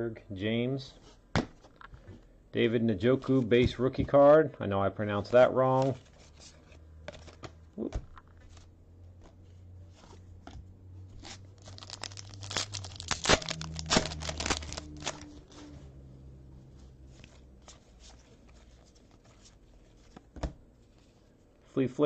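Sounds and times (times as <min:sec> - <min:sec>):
wrapper tearing and crinkling: 0:11.2 - 0:15.4.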